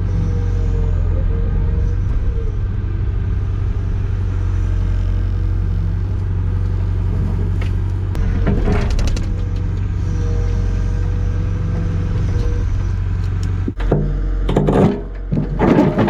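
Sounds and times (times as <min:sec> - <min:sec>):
excavator diesel engine running: 0:00.0 - 0:16.0
metal clanking: 0:08.1 - 0:10.0, 0:13.7 - 0:16.0.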